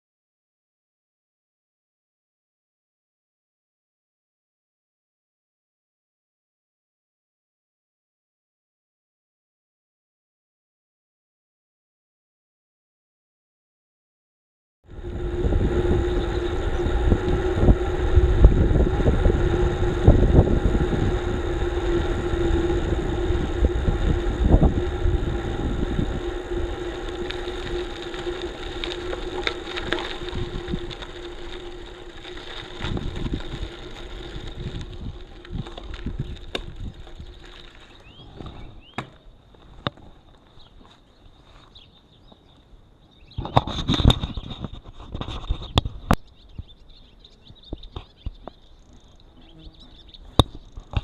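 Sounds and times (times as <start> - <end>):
steady hum: 14.9 - 40.3
bicycle rumbling over bumpy track: 14.9 - 42.5, 43.2 - 51.0.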